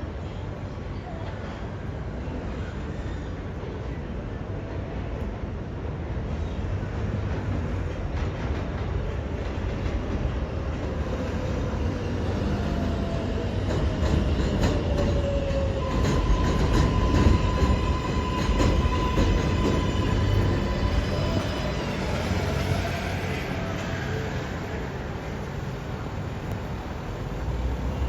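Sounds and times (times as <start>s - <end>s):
subway train rumbling: 0.0s - 28.0s
high-pitched whine or wheel squeal: 15.2s - 24.4s.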